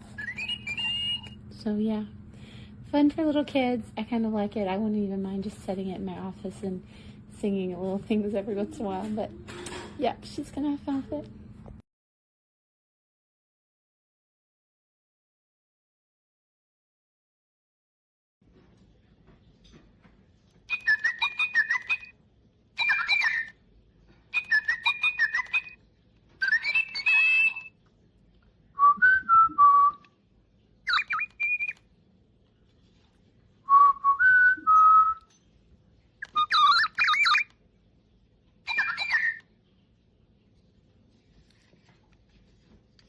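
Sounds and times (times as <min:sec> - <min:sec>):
toy bird electronic chirps: 0:00.0 - 0:01.4, 0:20.7 - 0:22.2, 0:22.8 - 0:23.6, 0:24.3 - 0:25.8, 0:26.4 - 0:27.8, 0:30.9 - 0:31.8, 0:36.2 - 0:37.5, 0:38.6 - 0:39.5.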